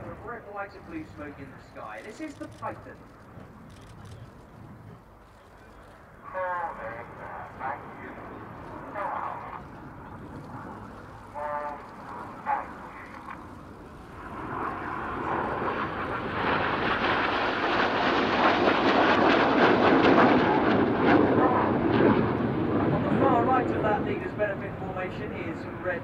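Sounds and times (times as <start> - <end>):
jets flying past: 6.1 - 26.0.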